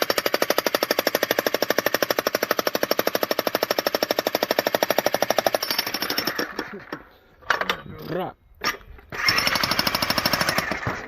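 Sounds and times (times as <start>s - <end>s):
electric jackhammer hammering rock: 0.0s - 7.0s, 9.1s - 11.0s.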